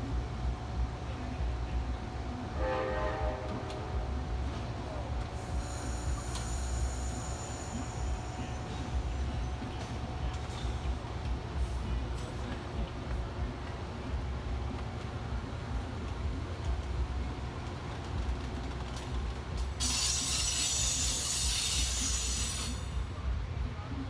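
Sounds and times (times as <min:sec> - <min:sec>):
train rumbling past: 0:00.0 - 0:24.0
locomotive horn blast: 0:02.5 - 0:04.6.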